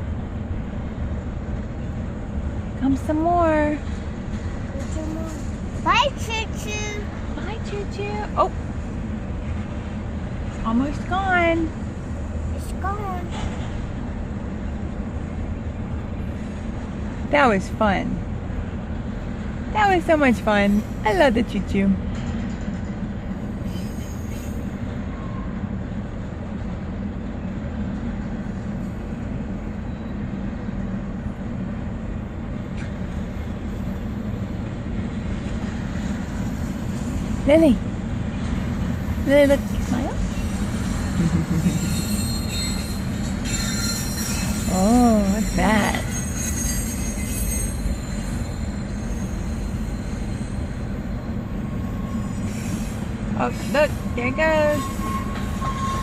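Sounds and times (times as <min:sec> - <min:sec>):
train rumbling: 0:00.0 - 0:56.0
high wheel squeal: 0:23.6 - 0:25.6, 0:40.3 - 0:56.0.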